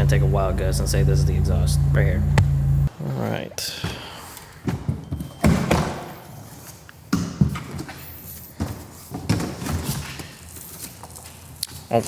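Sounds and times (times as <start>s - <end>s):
dull knocks and thumps: 2.2s - 2.9s.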